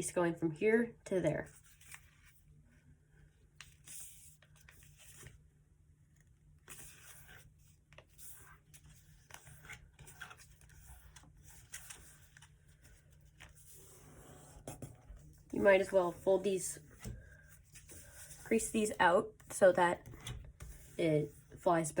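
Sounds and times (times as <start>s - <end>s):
paper rustling and crinkling: 6.6s - 16.2s.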